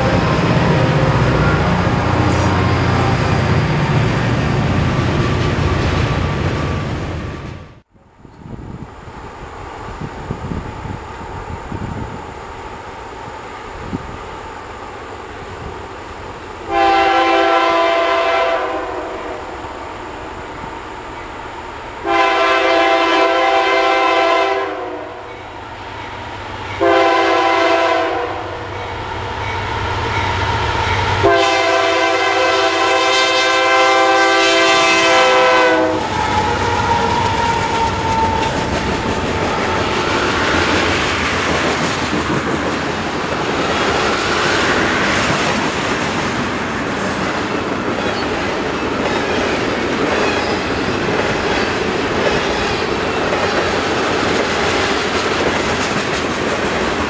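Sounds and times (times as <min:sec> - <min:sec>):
locomotive horn blasts: 0:00.0 - 0:04.7, 0:16.7 - 0:19.4, 0:22.0 - 0:25.2, 0:26.8 - 0:28.6, 0:31.2 - 0:38.5
train cars rolling over rails: 0:00.0 - 0:08.4, 0:35.8 - 0:57.0.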